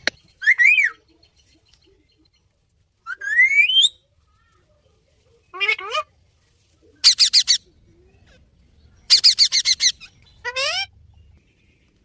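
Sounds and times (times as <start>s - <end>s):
parrot chirping and squawking: 5.5s - 6.1s, 7.0s - 7.7s, 9.1s - 11.0s.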